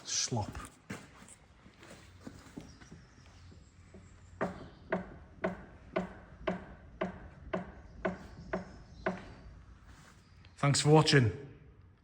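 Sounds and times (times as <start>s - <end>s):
sharp knocks: 4.4s - 9.4s.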